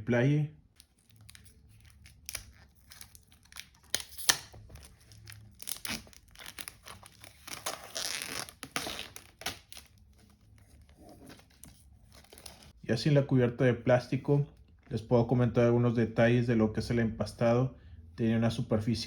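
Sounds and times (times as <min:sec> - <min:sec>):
plastic shrink wrap tearing: 0:00.8 - 0:10.1
plastic crinkling and crackling: 0:00.8 - 0:12.8.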